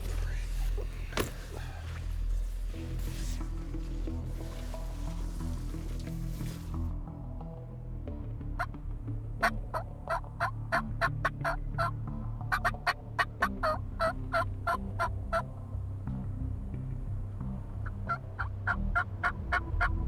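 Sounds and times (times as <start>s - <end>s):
turkey yelps: 9.4s - 11.9s, 12.5s - 15.4s.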